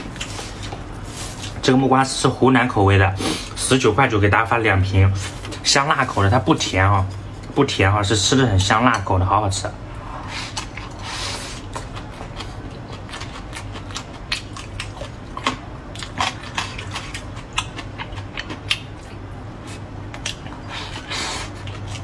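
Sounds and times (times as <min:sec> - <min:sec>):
person chewing food: 0:00.0 - 0:01.6, 0:10.2 - 0:22.0.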